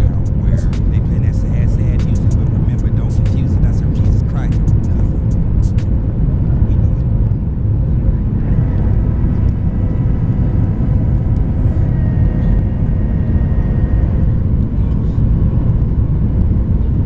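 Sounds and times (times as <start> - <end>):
high thin jet whine: 0.0 - 6.0, 8.1 - 17.0
jet engine roar: 8.2 - 17.0.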